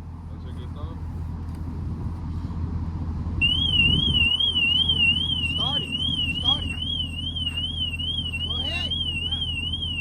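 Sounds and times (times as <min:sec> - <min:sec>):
car alarm warbling siren: 0:03.4 - 0:10.0.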